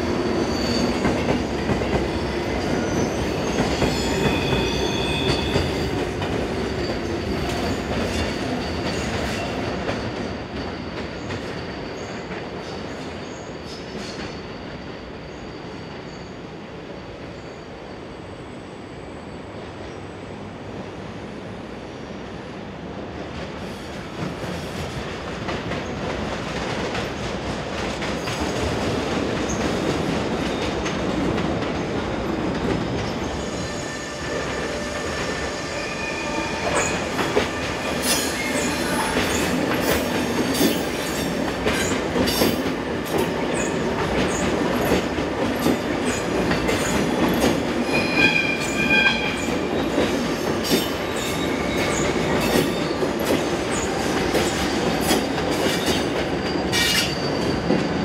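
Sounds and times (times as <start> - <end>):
train wheels rumbling on track: 0.0 - 58.0
high wheel squeal: 0.2 - 1.3, 2.1 - 12.3, 33.0 - 42.4, 46.8 - 53.0, 55.9 - 58.0.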